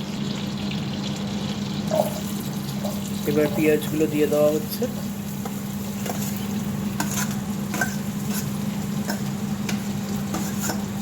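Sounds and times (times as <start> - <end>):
onions sizzling in a pan: 0.0 - 11.0
spatula scraping a pan: 5.4 - 11.0.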